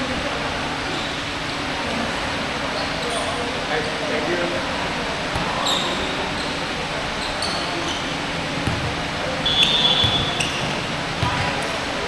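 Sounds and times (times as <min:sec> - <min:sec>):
basketball bouncing on court: 0:04.6 - 0:12.0.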